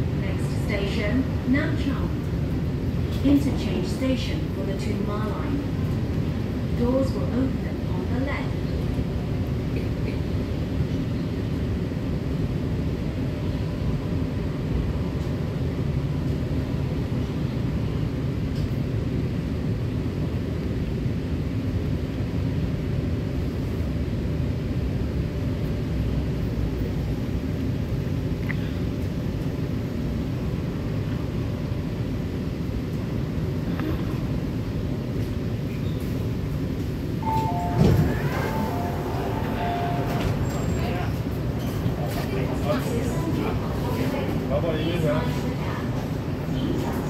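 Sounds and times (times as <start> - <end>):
train rumbling: 0.0 - 47.0
faint steady whine: 23.5 - 43.2.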